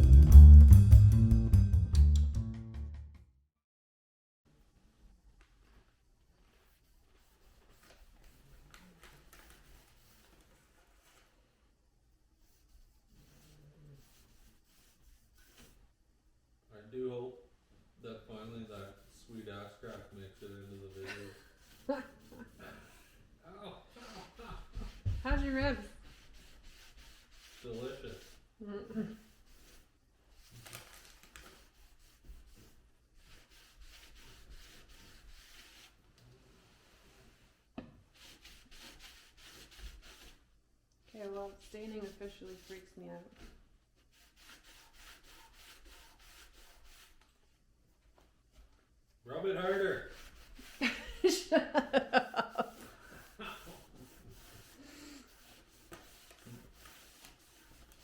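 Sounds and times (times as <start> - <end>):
cloth rubbing on wood: 5.6 - 11.4, 12.4 - 15.8, 18.3 - 30.7, 31.4 - 40.5, 41.1 - 47.6, 49.6 - 58.0
rag rubbing wood: 18.6 - 23.2, 24.2 - 28.4, 44.1 - 47.2, 49.7 - 51.2, 52.1 - 58.0.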